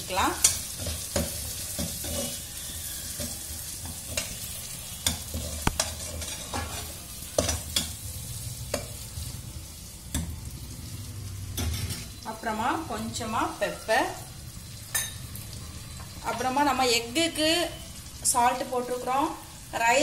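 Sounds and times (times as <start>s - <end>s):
vegetables sizzling in a pot: 0.0s - 20.0s
metal spatula scraping pot: 0.4s - 8.0s.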